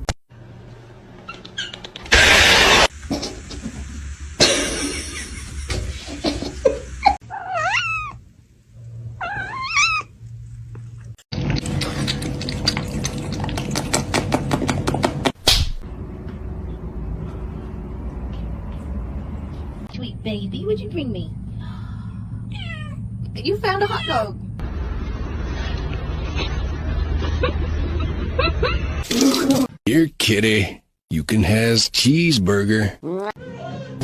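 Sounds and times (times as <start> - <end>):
loud burst of noise: 2.1 - 3.2
cat meowing: 7.2 - 8.2, 9.2 - 10.1, 22.5 - 23.0.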